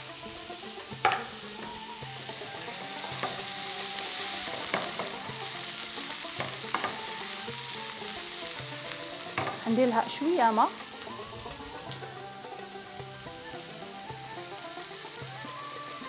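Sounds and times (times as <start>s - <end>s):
food sizzling in a frying pan: 0.0s - 16.0s
wooden spoon knocking pan: 1.0s - 1.8s, 2.8s - 3.7s, 4.3s - 7.3s, 8.6s - 10.2s.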